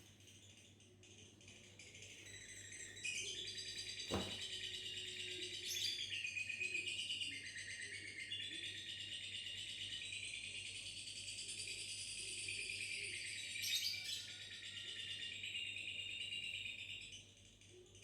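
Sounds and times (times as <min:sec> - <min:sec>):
sharp knock: 0:04.1 - 0:04.5.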